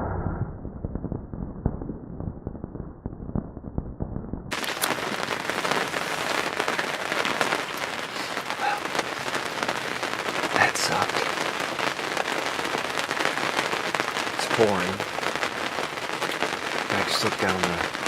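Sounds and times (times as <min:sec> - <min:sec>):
heavy rain pouring: 0:04.5 - 0:18.0.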